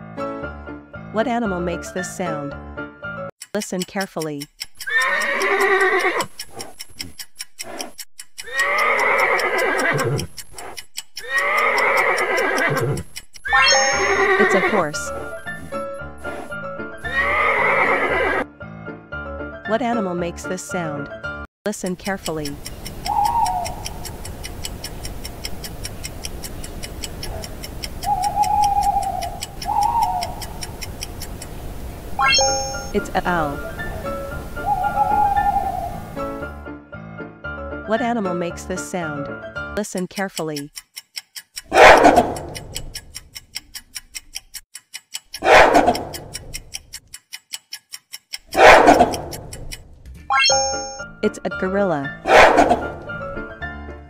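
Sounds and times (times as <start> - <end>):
countdown clock ticking fast: 3.4 - 17.5, 21.7 - 35.6, 39.8 - 53.2
owl hooting: 22.8 - 24.3, 27.2 - 31.0, 32.7 - 36.3
gorilla calling: 23.0 - 24.0, 27.2 - 30.7, 32.8 - 36.1.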